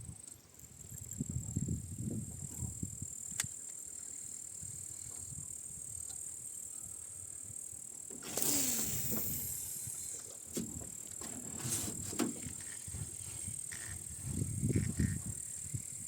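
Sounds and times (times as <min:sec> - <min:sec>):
high-pitched hiss: 0:00.0 - 0:16.0
oarlock creaking: 0:13.6 - 0:14.1.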